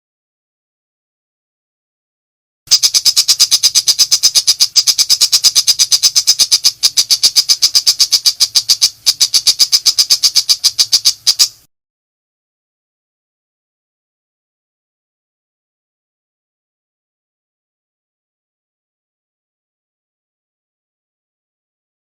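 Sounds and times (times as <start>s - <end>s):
bird harsh rapid chatter: 2.7s - 11.7s.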